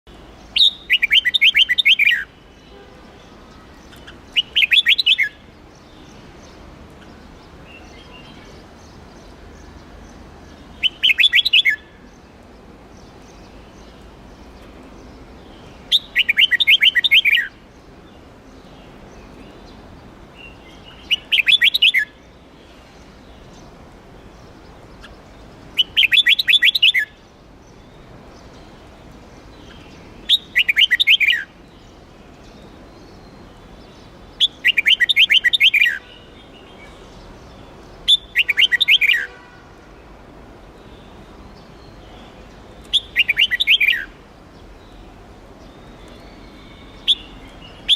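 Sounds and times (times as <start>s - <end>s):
bulbul singing warbling phrases: 0.4s - 12.1s, 15.4s - 17.7s, 20.4s - 22.2s, 24.4s - 27.4s, 29.6s - 39.7s, 40.8s - 44.2s.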